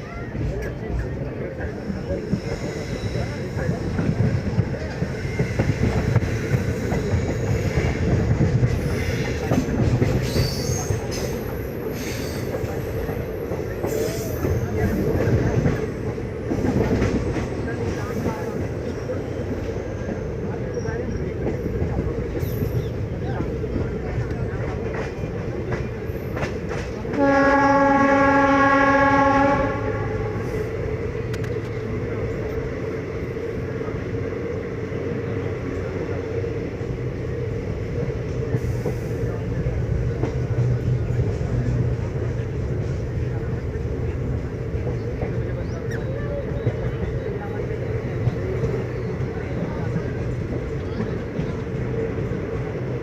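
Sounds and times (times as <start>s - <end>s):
train wheels rumbling and clicking: 0.0s - 53.0s
high wheel squeal: 10.2s - 12.5s
train horn blast: 27.1s - 30.5s.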